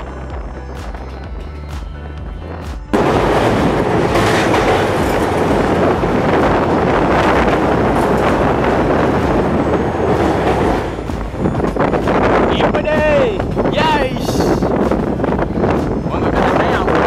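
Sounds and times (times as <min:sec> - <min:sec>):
background music: 0:00.0 - 0:17.0
wheels on rails: 0:02.3 - 0:13.6
air rushing past: 0:02.4 - 0:16.1.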